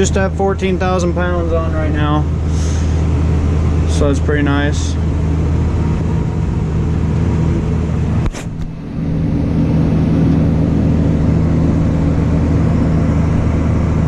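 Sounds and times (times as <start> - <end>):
tractor engine running: 0.0 - 14.0
sharp click: 8.2 - 8.7.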